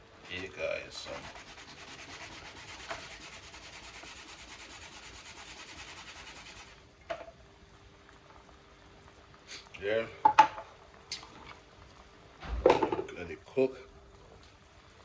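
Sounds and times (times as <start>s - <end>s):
knock: 12.4s - 13.1s.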